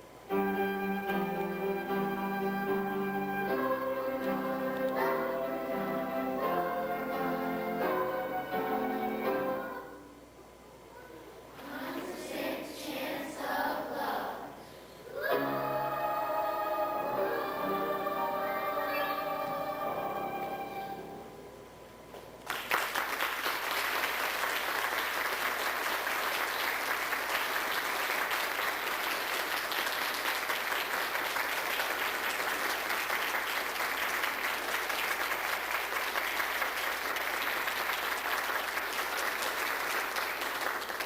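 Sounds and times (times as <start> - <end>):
audience clapping: 22.2 - 41.0.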